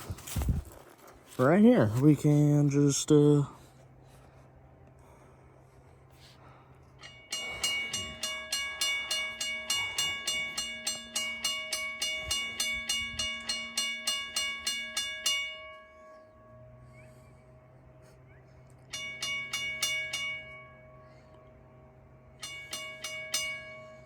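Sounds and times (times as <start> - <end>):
railroad crossing bell ringing: 6.7 - 24.0.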